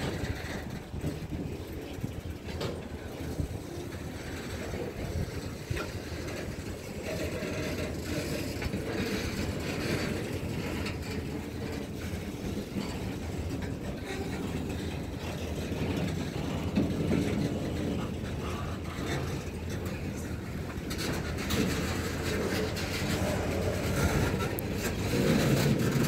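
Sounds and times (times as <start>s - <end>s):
train cars clanking: 0.0s - 26.0s
train wheels rumbling on rails: 0.0s - 26.0s.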